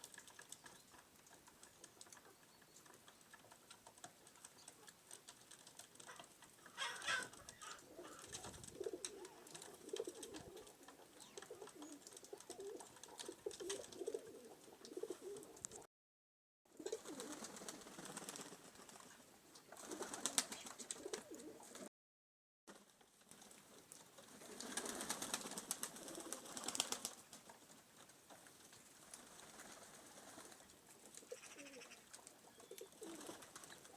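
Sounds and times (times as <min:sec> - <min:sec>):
pigeons cooing: 0:06.0 - 0:15.9, 0:16.8 - 0:17.6, 0:19.8 - 0:21.9, 0:30.2 - 0:33.9.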